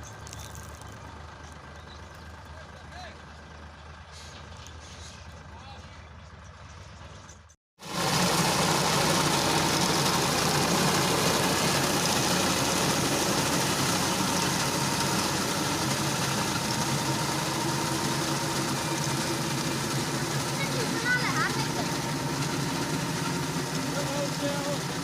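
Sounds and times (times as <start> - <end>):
tractor engine hum: 0.0 - 25.0
reaper mechanical rattle and hiss: 4.0 - 5.4.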